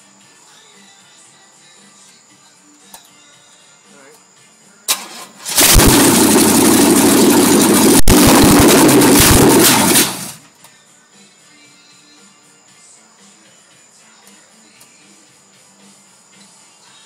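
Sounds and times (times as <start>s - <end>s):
car engine cranking and running rough: 4.9s - 10.4s.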